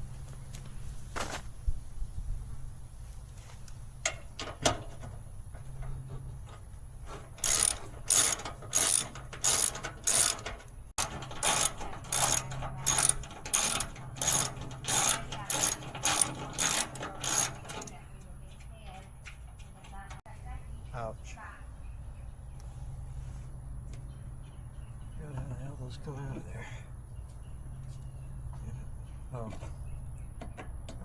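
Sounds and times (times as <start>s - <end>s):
ratchet wrench clicking: 7.4s - 17.9s.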